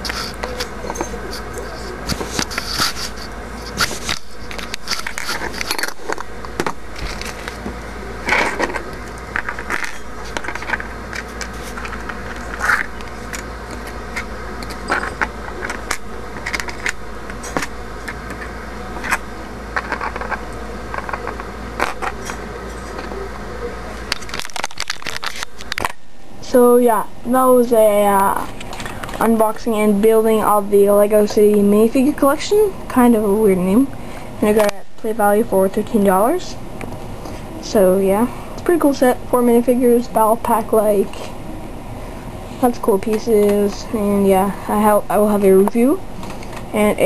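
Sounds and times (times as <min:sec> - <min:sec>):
steady low hum: 0:00.0 - 0:47.0
plastic pieces clicking and rattling: 0:08.3 - 0:17.7, 0:19.8 - 0:22.4, 0:24.1 - 0:26.0.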